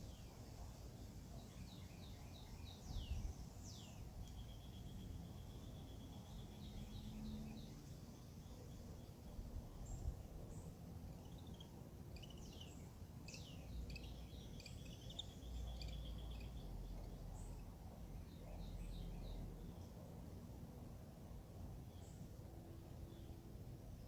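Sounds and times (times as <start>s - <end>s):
birds chirping and calling: 11.2s - 17.7s.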